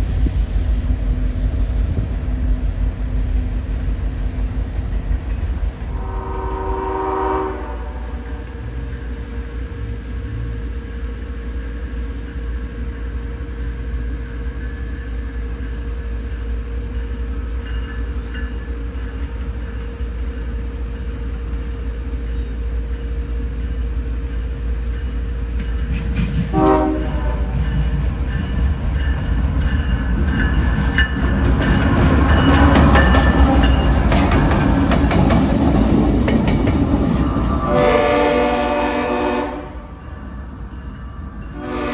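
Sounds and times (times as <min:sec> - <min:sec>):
diesel locomotive engines rumbling: 0:00.0 - 0:41.9
train horn: 0:05.9 - 0:10.7, 0:26.3 - 0:28.0, 0:37.6 - 0:40.3, 0:41.5 - 0:41.9
train wheels clattering: 0:21.6 - 0:39.2.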